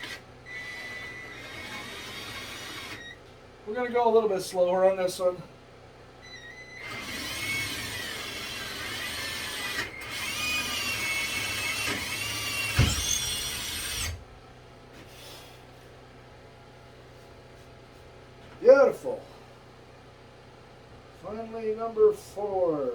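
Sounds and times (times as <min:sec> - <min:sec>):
power drill whine: 0:00.0 - 0:03.2, 0:06.2 - 0:14.3.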